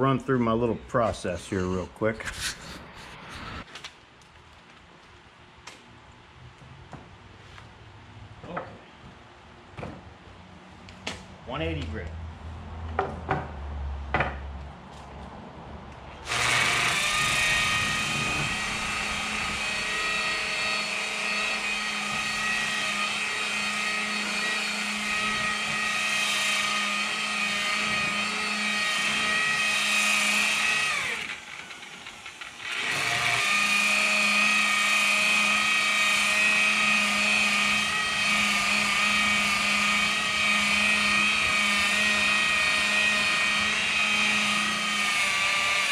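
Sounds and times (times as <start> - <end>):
electric sander whining: 16.2 - 45.9.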